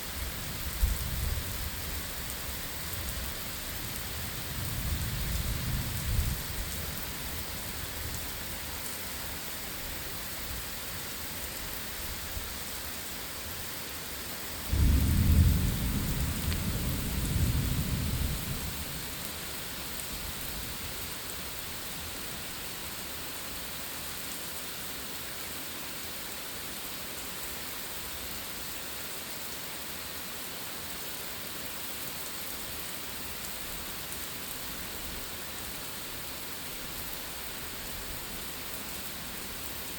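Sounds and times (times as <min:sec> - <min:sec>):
steady rain falling: 0:00.0 - 0:39.9
thunder rumbling: 0:14.7 - 0:19.0.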